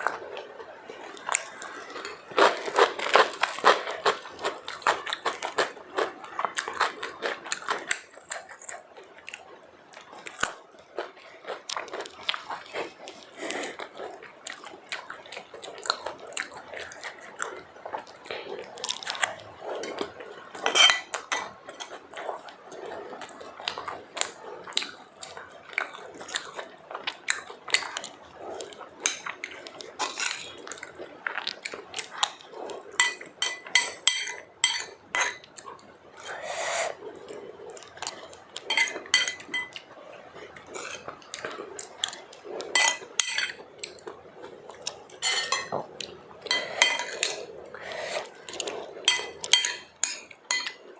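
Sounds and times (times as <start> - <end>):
plate and utensils clinking: 20.6 - 21.9, 33.0 - 35.4, 38.7 - 39.8, 42.7 - 43.6, 45.2 - 45.9, 46.5 - 47.4, 49.1 - 50.8.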